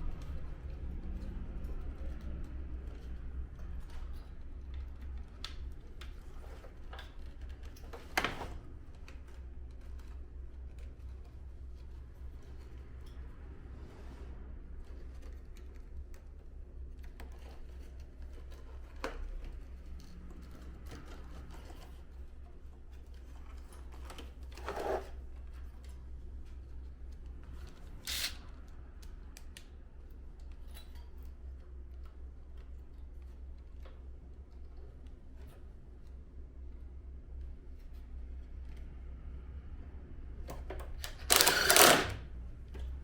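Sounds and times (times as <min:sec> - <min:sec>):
scrape: 0:11.8 - 0:15.4, 0:22.9 - 0:26.6
plastic parts clicking and knocking: 0:40.5 - 0:43.0.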